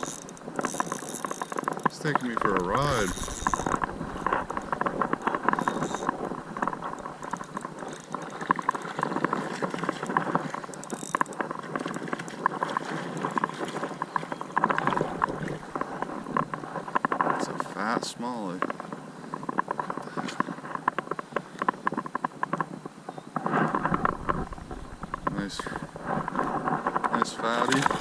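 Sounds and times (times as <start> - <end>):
fishing reel clicking and whirring: 0.0 - 12.1, 27.4 - 28.0.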